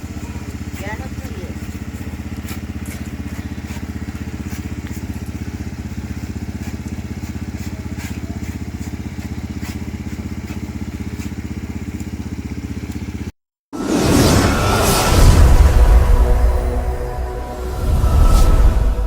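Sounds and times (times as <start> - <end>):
motorcycle engine idling: 0.0 - 13.4.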